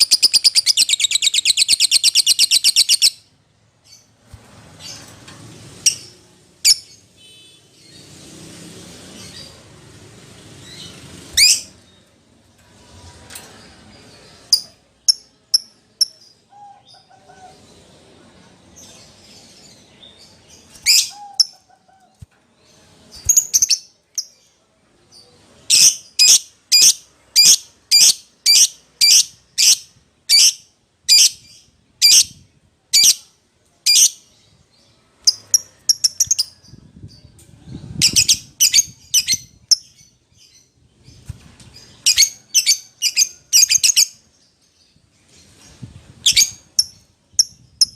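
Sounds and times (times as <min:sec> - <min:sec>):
lovebird chirping: 0:00.0 - 0:04.1, 0:10.6 - 0:12.1, 0:18.8 - 0:21.8, 0:35.2 - 0:37.2, 0:38.0 - 0:41.2, 0:41.8 - 0:44.9, 0:46.2 - 0:47.9.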